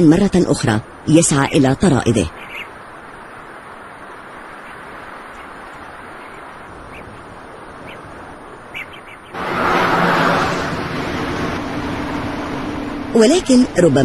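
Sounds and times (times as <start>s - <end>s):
road traffic rushing: 0.0s - 14.0s
faint bird chirps: 1.1s - 3.3s, 4.0s - 9.4s.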